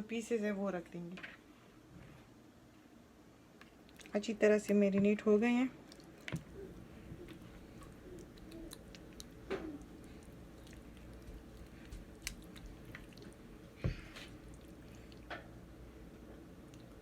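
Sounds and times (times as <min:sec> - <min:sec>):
faint wet squishing: 0:03.5 - 0:04.9, 0:05.8 - 0:17.0.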